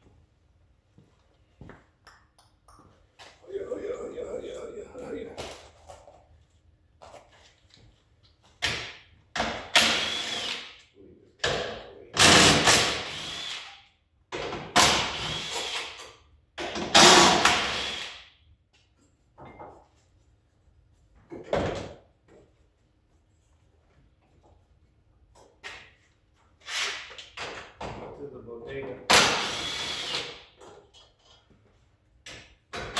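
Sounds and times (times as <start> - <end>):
handheld power tool motor: 9.7 - 10.8, 12.2 - 13.8, 14.8 - 16.0, 17.0 - 18.2, 29.1 - 30.5.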